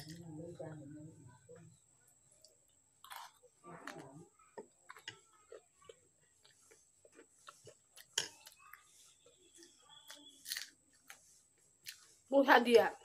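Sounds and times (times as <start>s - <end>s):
person chewing: 2.4s - 4.0s, 4.6s - 12.1s.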